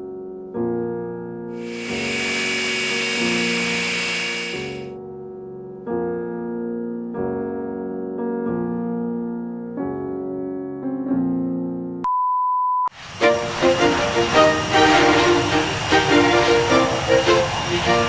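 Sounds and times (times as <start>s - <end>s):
single-pitch beep: 12.0s - 12.9s
piano chords: 13.1s - 18.0s.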